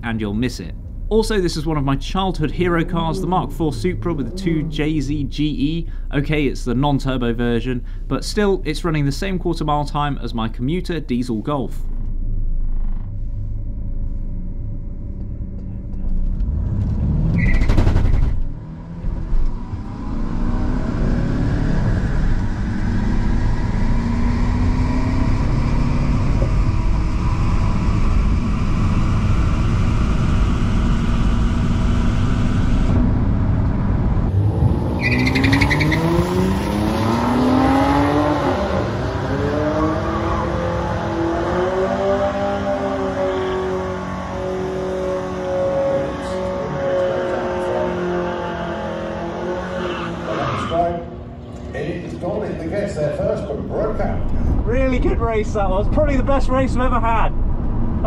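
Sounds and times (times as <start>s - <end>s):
car engine accelerating: 0.0s - 58.0s
race cars passing: 15.1s - 56.6s.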